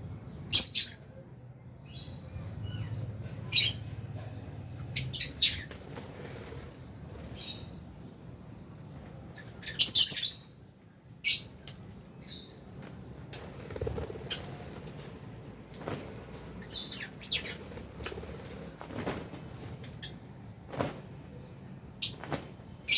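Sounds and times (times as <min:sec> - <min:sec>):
birds giving shrill calls: 0:00.5 - 0:01.0, 0:05.0 - 0:05.8, 0:09.4 - 0:10.5, 0:16.6 - 0:18.2.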